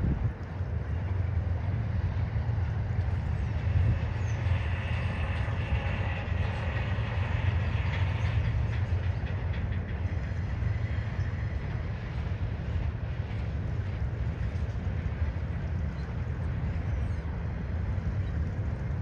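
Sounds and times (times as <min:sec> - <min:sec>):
freight train rumbling on a bridge: 0:00.0 - 0:19.0
wheels clicking over rail joints: 0:00.0 - 0:19.0.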